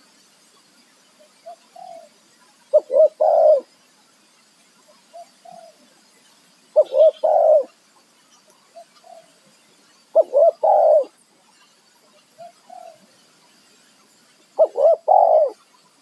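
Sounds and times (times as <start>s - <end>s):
dove cooing: 1.4s - 3.7s, 5.1s - 5.8s, 6.8s - 7.7s, 8.8s - 9.4s, 10.2s - 11.2s, 12.4s - 13.1s, 14.6s - 15.6s.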